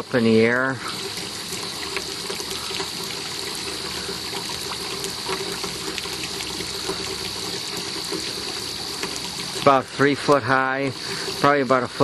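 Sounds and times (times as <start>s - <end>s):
faint steady hum: 0.0s - 12.0s
fountain splashing into water: 0.0s - 12.0s.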